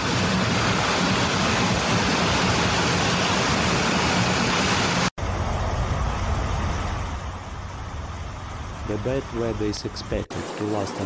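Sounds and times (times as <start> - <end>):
heavy rain hissing: 0.0 - 11.0
rumbling rain and water: 0.0 - 11.0.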